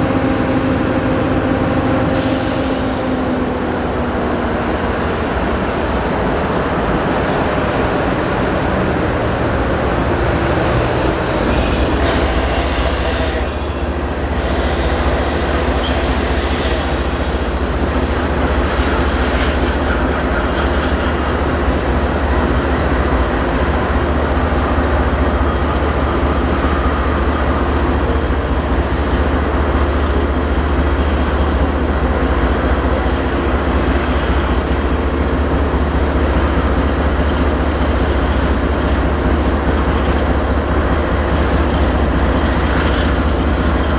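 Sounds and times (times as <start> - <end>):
freight train rumbling on rails: 0.0 - 43.9
high wheel squeal: 5.3 - 29.3.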